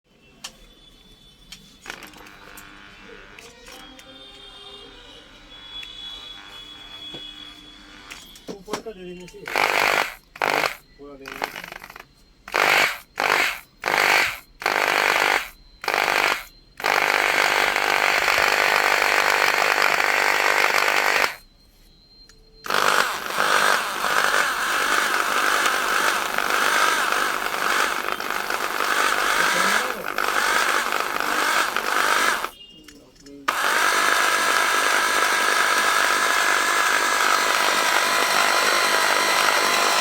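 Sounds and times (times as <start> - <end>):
rotary hammer drill running: 1.9 - 3.4, 9.5 - 21.4, 22.6 - 32.6, 33.5 - 40.0.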